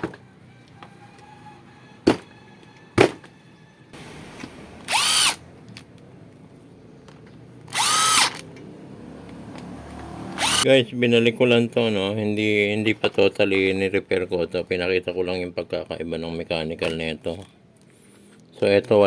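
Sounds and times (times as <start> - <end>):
rotary hammer drill motor: 4.8 - 5.4, 7.7 - 8.4, 10.2 - 10.7.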